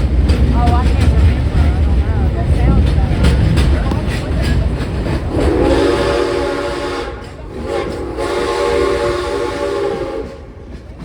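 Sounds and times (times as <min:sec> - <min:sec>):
low rumble of moving train: 0:00.0 - 0:11.0
steam train whistle blasts: 0:05.3 - 0:10.5.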